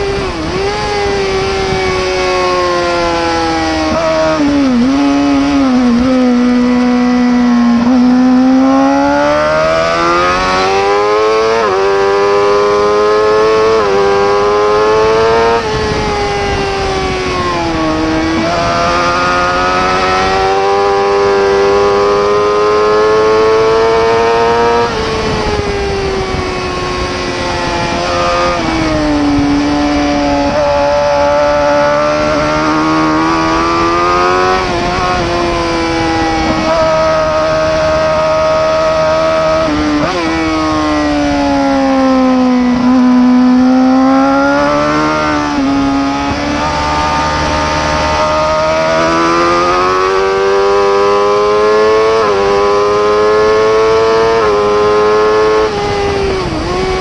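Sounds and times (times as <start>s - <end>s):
racing motorcycle engine revving: 0.0s - 57.0s.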